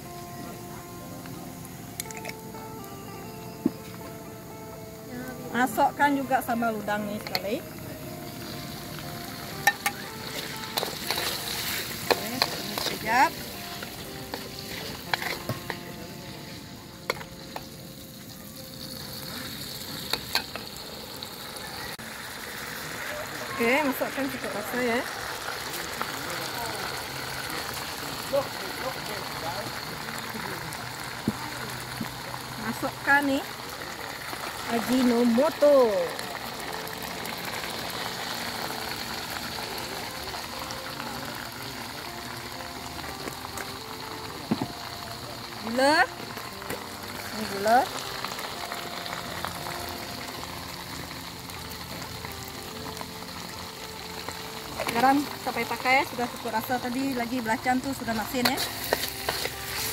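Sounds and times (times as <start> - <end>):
paste sizzling in oil: 0.0 - 59.9
metal spatula stirring: 9.6 - 15.8, 58.4 - 59.9.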